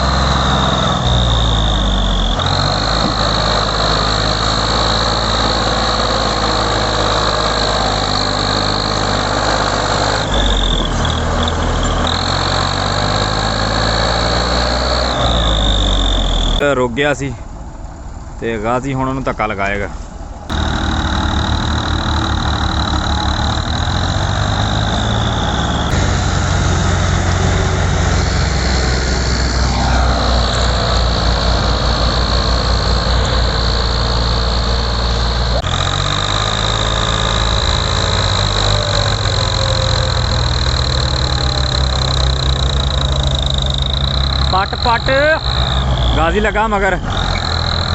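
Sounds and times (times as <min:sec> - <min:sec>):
tractor diesel engines straining: 0:00.0 - 0:47.9
steady high tone: 0:20.5 - 0:47.9.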